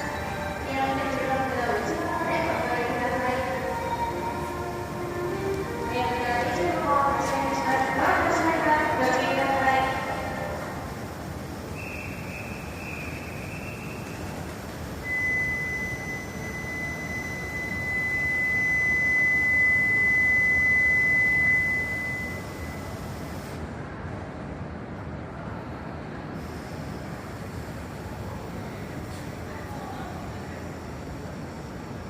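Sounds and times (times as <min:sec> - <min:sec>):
train noise: 0:00.0 - 0:32.0
steady high-pitched tone: 0:15.0 - 0:23.4.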